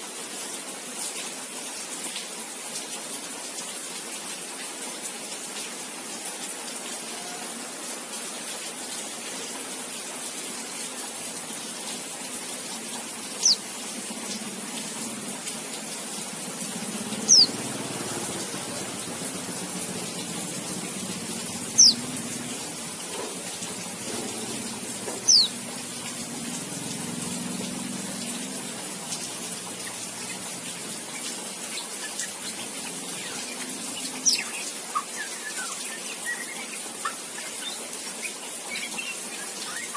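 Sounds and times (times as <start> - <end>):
bird whistled calls: 13.4 - 13.6, 17.3 - 17.6, 21.8 - 22.0, 25.2 - 25.5, 31.8 - 39.9.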